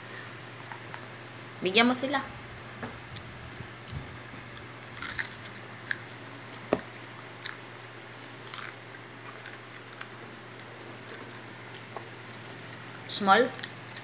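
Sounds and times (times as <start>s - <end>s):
child chewing corn: 3.1s - 14.0s.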